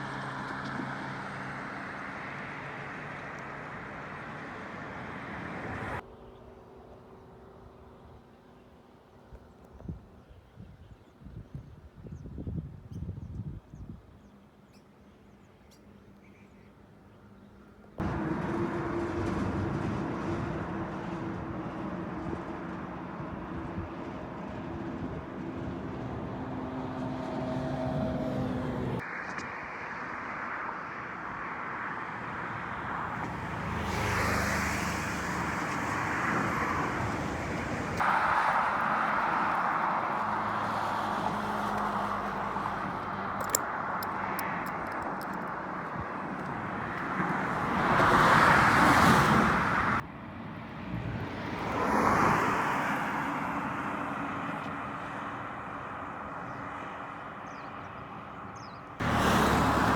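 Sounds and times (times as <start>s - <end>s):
cars passing by: 0.0s - 6.0s, 18.0s - 59.9s
vehicle passing close: 18.0s - 29.2s, 32.0s - 50.0s, 59.0s - 59.9s.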